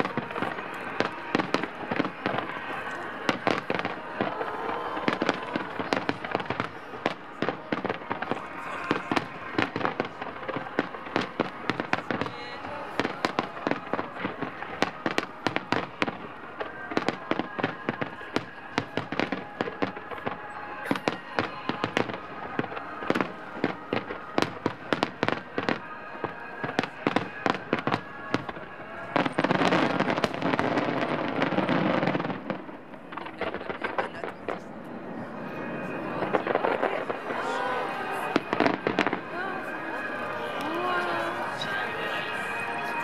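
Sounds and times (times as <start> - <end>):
fireworks bursting with bangs: 0.0 - 43.0
fireworks crackle: 0.0 - 43.0
music: 38.0 - 43.0.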